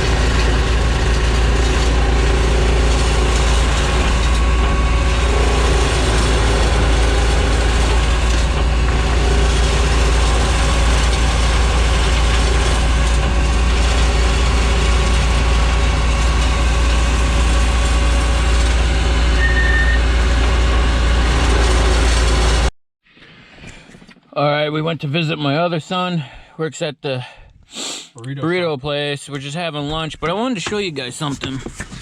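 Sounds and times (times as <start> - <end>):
heavy engine running under load: 0.0 - 22.7.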